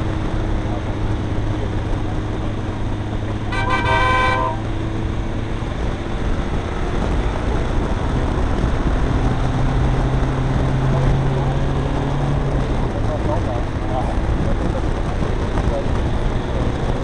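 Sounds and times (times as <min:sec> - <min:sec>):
diesel engine droning: 0:00.0 - 0:17.0
tyre and road noise: 0:00.0 - 0:17.0
car horn: 0:03.4 - 0:04.8.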